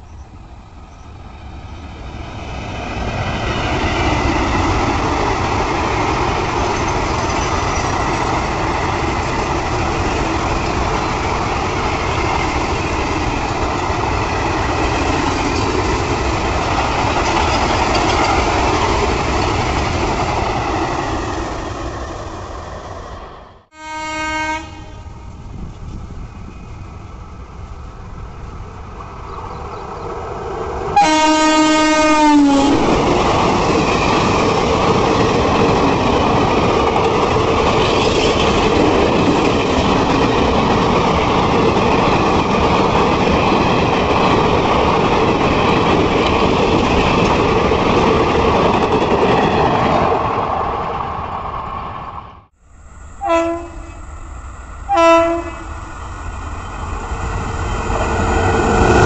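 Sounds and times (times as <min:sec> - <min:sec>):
express train passing: 0:00.0 - 0:59.0
locomotive horn: 0:23.7 - 0:25.2, 0:31.0 - 0:32.8, 0:53.2 - 0:54.1, 0:54.9 - 0:55.9.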